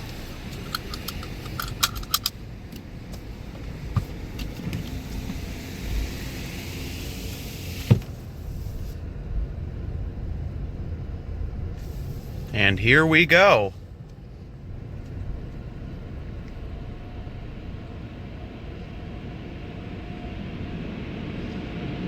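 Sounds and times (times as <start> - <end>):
light clicks and rattles: 0.0 - 3.3
car idling from inside: 0.0 - 21.7.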